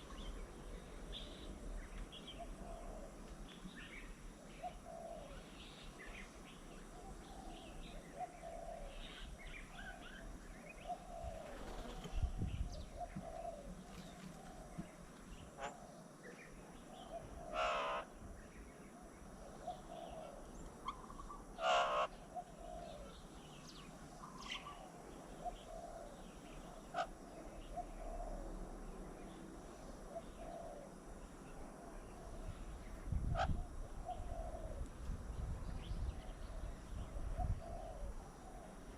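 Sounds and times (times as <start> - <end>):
birds calling: 0.0 - 28.4, 35.8 - 38.9
harsh bird calls: 16.8 - 18.1, 19.7 - 28.5.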